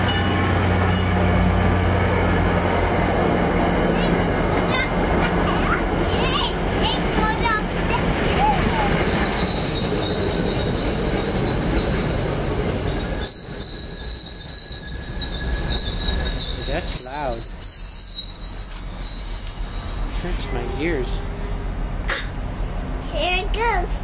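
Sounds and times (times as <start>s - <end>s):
rumble of train cars: 0.0s - 24.0s
train wheels squealing: 8.8s - 21.0s.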